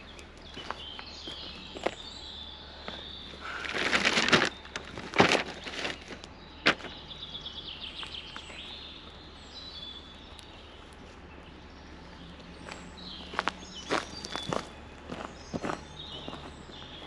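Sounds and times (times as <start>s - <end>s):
bird trill: 0.0s - 17.0s
small birds singing: 0.0s - 17.0s
loud rustling and scraping: 3.3s - 7.0s.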